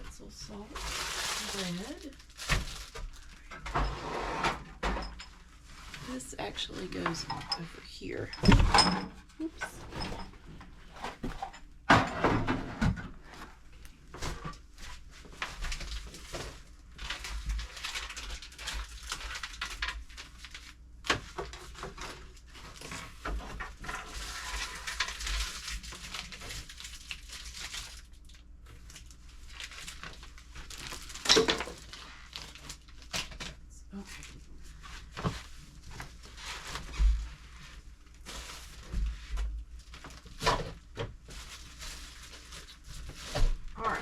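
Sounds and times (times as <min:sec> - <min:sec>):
food packaging rustling: 0:00.2 - 0:03.8, 0:13.3 - 0:43.8.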